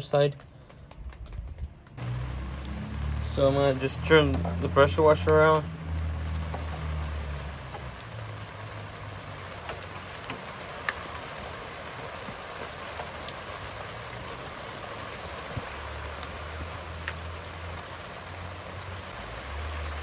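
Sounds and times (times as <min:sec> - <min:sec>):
low hum: 0:01.7 - 0:08.4.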